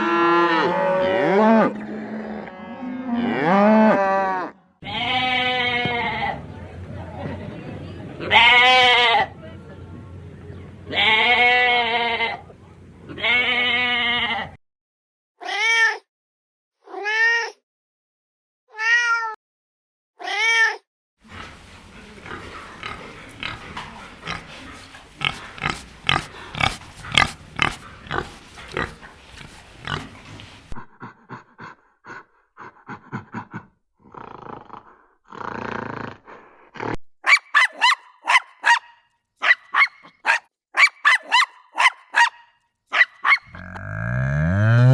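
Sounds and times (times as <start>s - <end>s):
animal grunting: 21.2s - 37.0s, 43.4s - 44.9s
long wavering animal calls: 43.5s - 44.9s.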